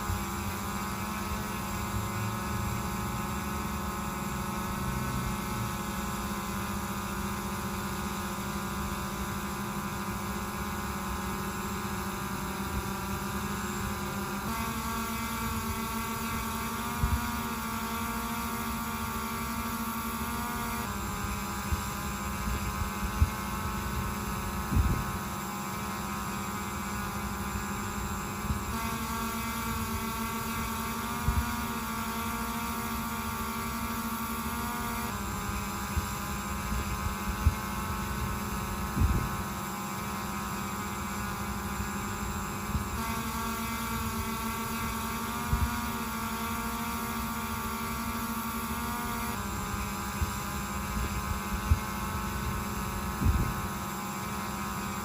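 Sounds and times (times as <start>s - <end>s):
drone propellers humming: 0.0s - 55.0s.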